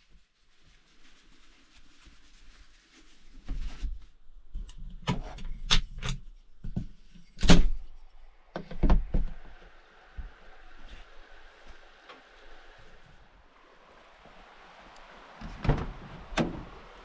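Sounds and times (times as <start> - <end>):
faint hiss: 7.0 - 17.0
knocks and bumps: 15.4 - 17.0.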